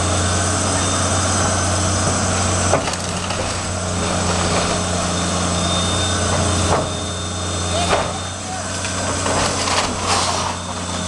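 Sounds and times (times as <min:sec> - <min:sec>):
diesel engine running: 0:00.0 - 0:11.0
wood cracking and splintering: 0:02.5 - 0:05.1, 0:08.7 - 0:10.6.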